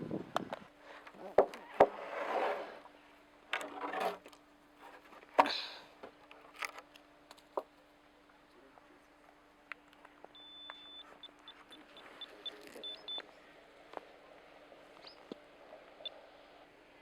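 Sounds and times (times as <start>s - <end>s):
electronic beeping: 12.0s - 13.2s.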